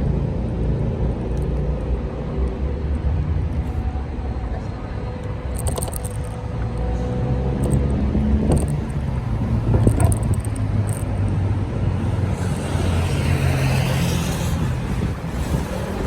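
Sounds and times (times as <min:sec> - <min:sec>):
road vibration: 0:00.0 - 0:16.0
wind rumble: 0:00.0 - 0:16.0
camera mount rattling clicks: 0:05.5 - 0:06.4, 0:08.5 - 0:09.0, 0:09.8 - 0:11.4.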